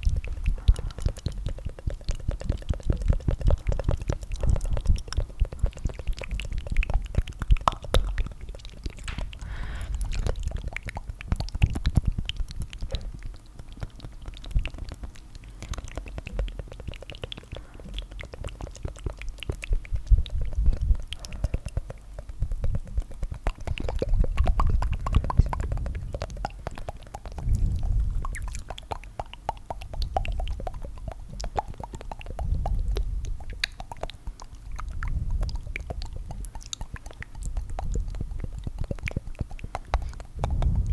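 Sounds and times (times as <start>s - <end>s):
wet mouth clicks and flutters: 0.0s - 40.9s
low rumble: 40.4s - 40.9s.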